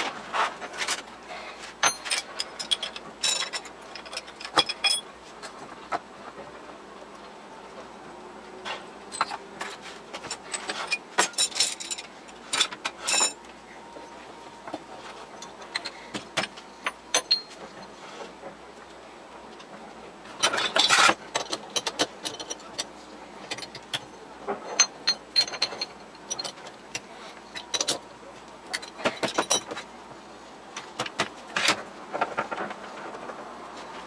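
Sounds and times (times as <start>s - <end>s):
metal tools clinking and scraping: 1.8s - 5.6s, 8.7s - 14.1s, 15.0s - 18.3s, 20.4s - 28.1s, 28.7s - 29.9s.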